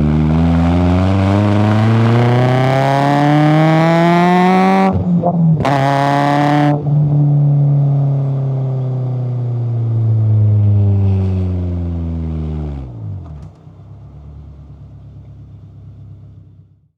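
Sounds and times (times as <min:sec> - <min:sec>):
car engine revs falling: 0:00.0 - 0:07.1.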